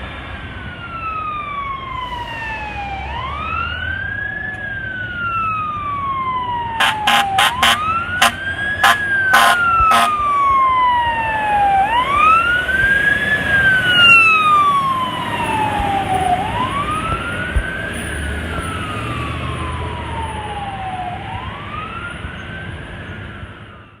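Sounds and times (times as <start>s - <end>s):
air horn blasts: 6.8s - 10.4s.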